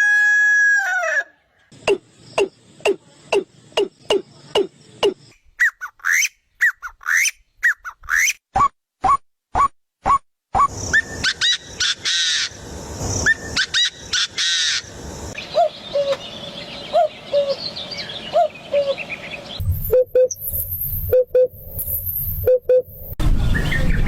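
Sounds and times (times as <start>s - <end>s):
birds chirping and trilling: 1.5s - 8.4s, 10.6s - 21.2s, 23.4s - 24.0s.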